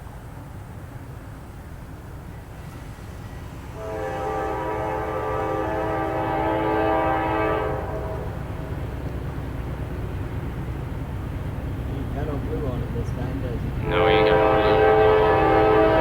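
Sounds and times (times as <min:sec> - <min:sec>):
train rumbling: 0:00.0 - 0:16.0
locomotive air horn: 0:03.7 - 0:08.5, 0:13.8 - 0:16.0.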